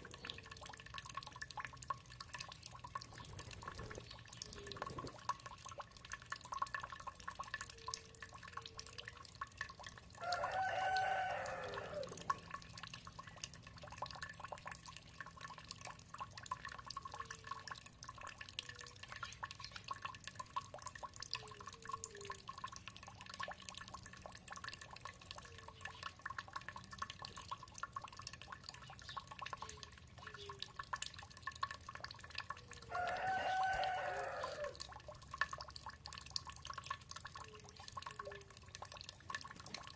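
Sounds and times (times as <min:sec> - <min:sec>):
water dripping and trickling: 0:00.0 - 0:39.9
rooster crowing: 0:10.2 - 0:12.2, 0:32.9 - 0:34.8
faint chicken clucks: 0:10.2 - 0:12.5, 0:32.8 - 0:34.8.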